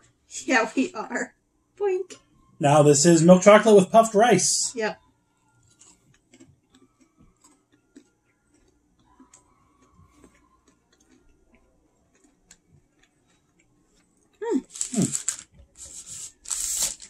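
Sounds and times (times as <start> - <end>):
chocolate bar crunching: 5.6 - 17.0.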